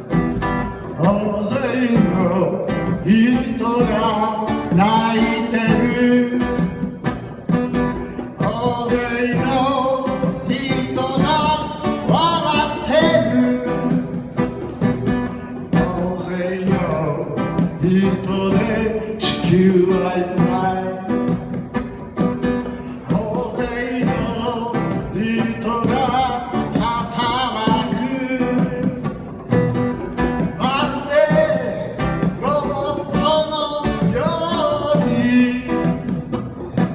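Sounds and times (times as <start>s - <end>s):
plucked acoustic guitar: 0.0s - 36.9s
person singing: 7.9s - 14.2s, 22.7s - 29.2s, 30.3s - 36.3s.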